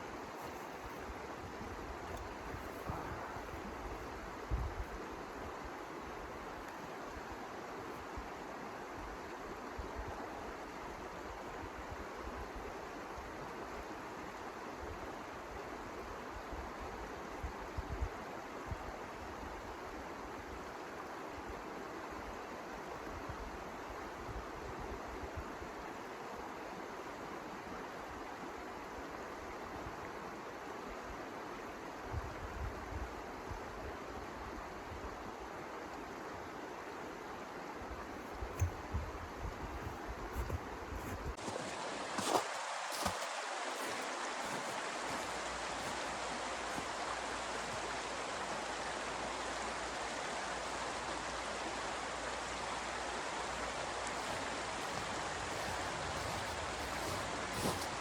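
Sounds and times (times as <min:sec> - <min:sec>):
blizzard wind rushing: 0:00.2 - 0:04.9
wind buffeting microphone: 0:01.2 - 0:05.0.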